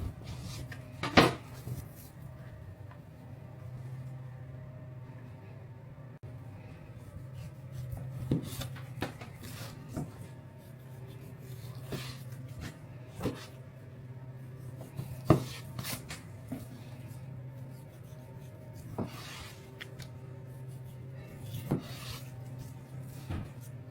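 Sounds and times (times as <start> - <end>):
steady low hum: 0.0 - 23.9
irregular knocks and scrapes: 21.3 - 23.7.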